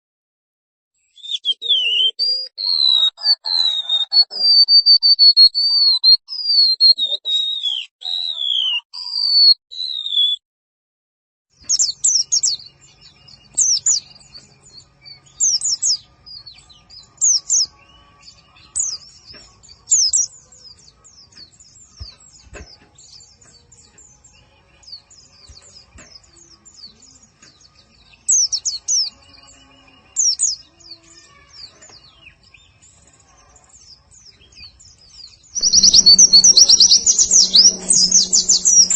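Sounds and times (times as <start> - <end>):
fast high bird chirping: 1.2 - 10.4, 35.6 - 38.9
high gliding whistled bird notes: 35.6 - 38.9.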